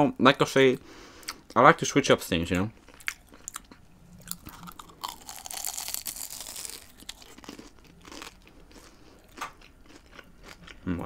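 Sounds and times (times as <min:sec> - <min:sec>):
person chewing: 0:01.2 - 0:01.6, 0:02.8 - 0:11.0
crunching fried food: 0:02.8 - 0:11.0.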